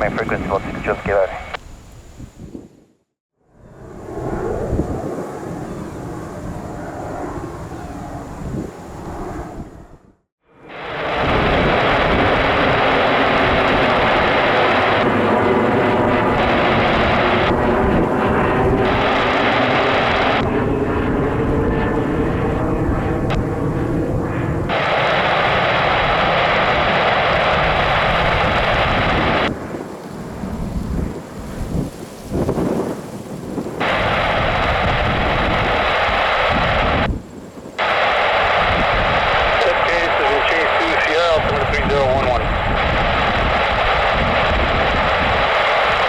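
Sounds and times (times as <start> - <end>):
radio static hiss: 0.0 - 1.6, 24.7 - 29.5, 33.8 - 37.1, 37.8 - 46.0
jet engines running: 0.0 - 2.3, 3.6 - 46.0.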